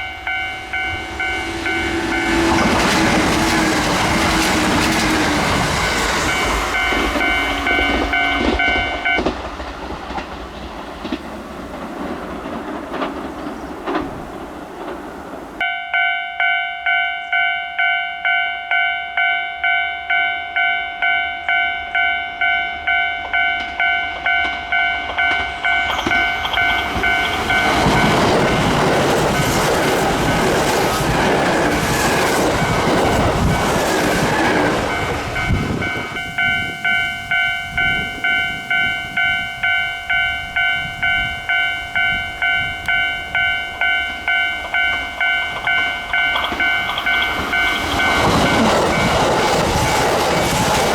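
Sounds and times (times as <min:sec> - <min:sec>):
level crossing bell dinging: 0:00.0 - 0:02.9, 0:05.8 - 0:09.3, 0:15.6 - 0:29.6, 0:34.9 - 0:49.1
train passing: 0:00.0 - 0:50.9.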